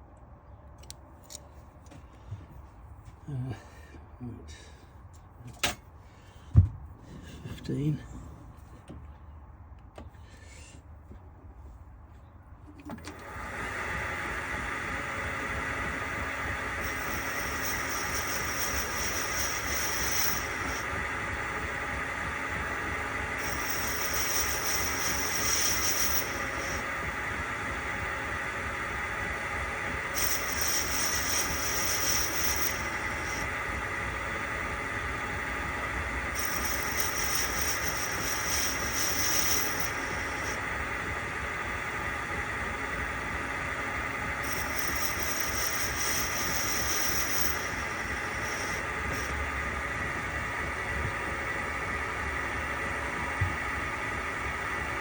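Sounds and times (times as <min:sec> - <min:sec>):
lathe running with hissing whirr: 0:13.1 - 0:55.0.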